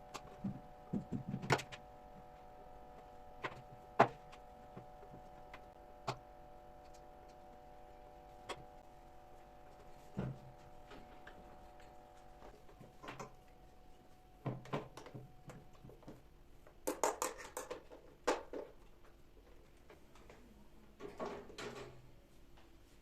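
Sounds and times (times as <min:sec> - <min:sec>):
objects knocking and clattering: 0:16.8 - 0:18.8.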